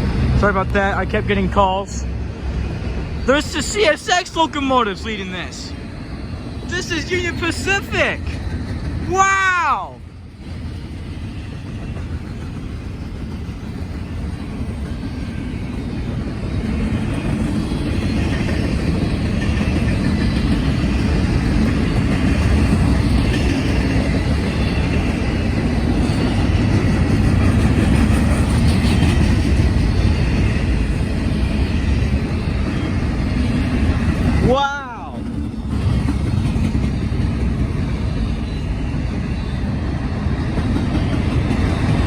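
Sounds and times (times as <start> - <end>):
freight train wheels rumbling: 0.0 - 42.0.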